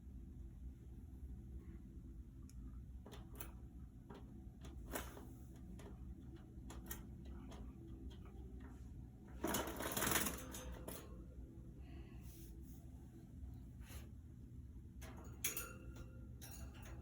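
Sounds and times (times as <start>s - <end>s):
budgies clicking and tapping in cage: 3.0s - 8.7s, 15.0s - 17.0s.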